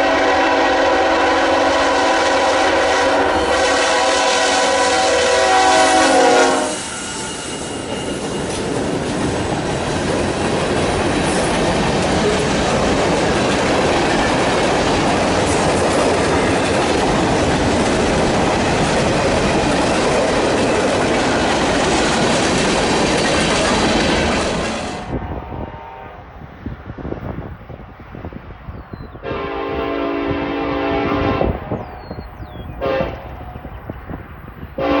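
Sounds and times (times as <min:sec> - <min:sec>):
train horn chord: 0:00.0 - 0:07.9, 0:24.9 - 0:26.5, 0:29.2 - 0:31.7, 0:32.8 - 0:33.4, 0:34.8 - 0:35.0
train wheels rumbling on rails: 0:00.0 - 0:35.0.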